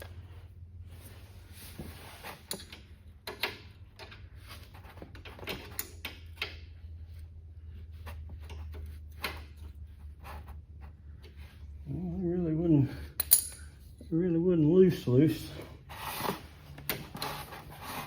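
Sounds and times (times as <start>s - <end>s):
wrench clinking on bolts: 13.2s - 13.8s.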